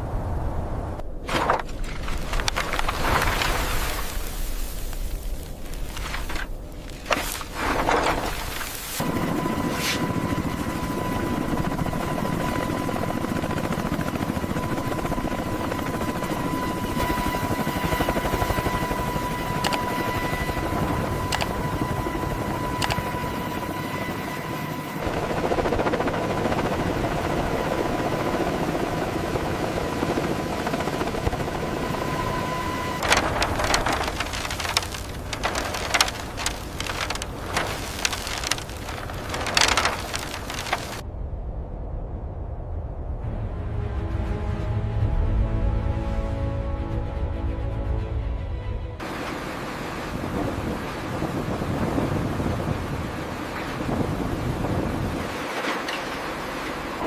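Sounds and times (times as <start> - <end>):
machinery whining: 6.0 - 41.0
sharp clicks: 21.2 - 21.5, 22.8 - 23.0.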